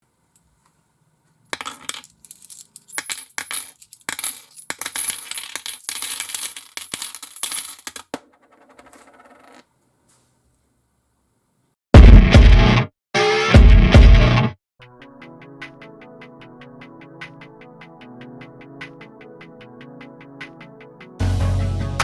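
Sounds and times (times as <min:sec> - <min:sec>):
small objects clinking: 0:01.5 - 0:09.6.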